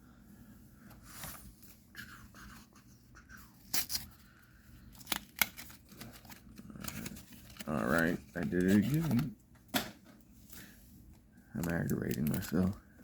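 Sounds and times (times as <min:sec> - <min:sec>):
cards rustling: 0:03.6 - 0:09.9, 0:10.5 - 0:12.8.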